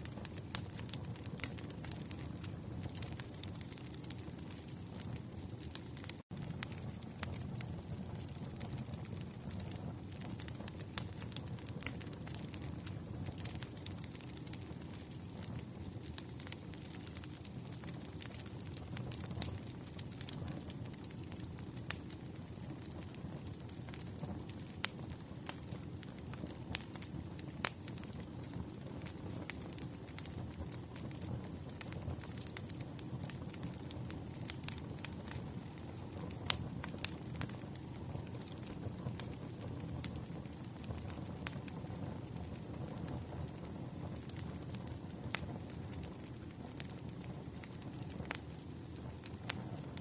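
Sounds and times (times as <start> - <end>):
fire crackling and popping: 0.0 - 50.0
firewood burning with crackles: 0.0 - 50.0.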